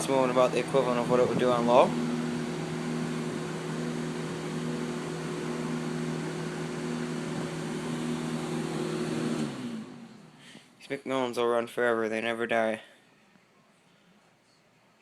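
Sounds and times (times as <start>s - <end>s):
box fan running: 0.0s - 11.4s.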